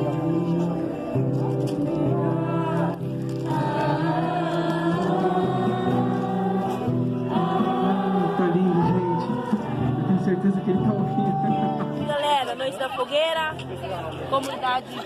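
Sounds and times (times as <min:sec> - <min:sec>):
voices singing worship music: 0:00.0 - 0:12.0.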